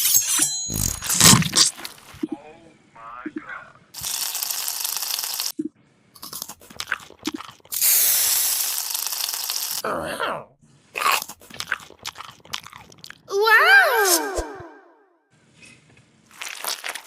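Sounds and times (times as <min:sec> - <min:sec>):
crunching of crisp food: 0:00.7 - 0:02.2, 0:06.2 - 0:07.9, 0:11.0 - 0:13.3, 0:16.3 - 0:17.0.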